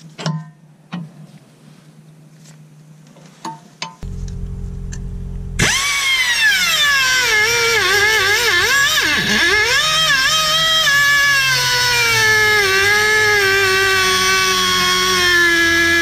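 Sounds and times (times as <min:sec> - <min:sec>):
abrasive cutoff wheel whining: 0:04.0 - 0:16.0.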